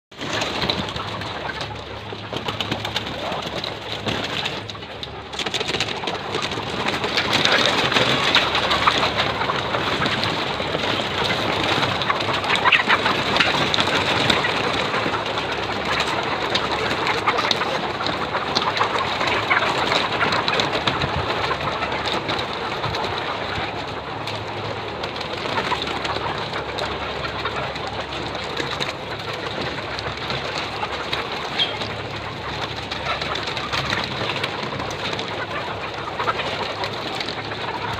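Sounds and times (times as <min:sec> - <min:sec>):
hens clucking: 0:00.1 - 0:37.9.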